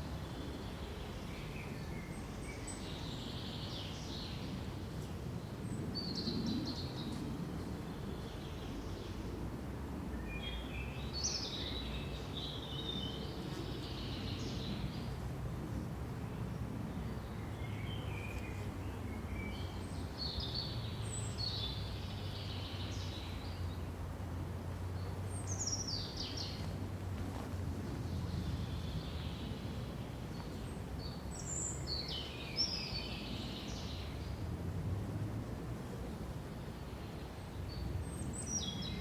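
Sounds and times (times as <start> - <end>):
songbirds chirping and trilling: 10.2 - 15.2, 16.3 - 24.1, 24.8 - 34.6, 36.4 - 39.0.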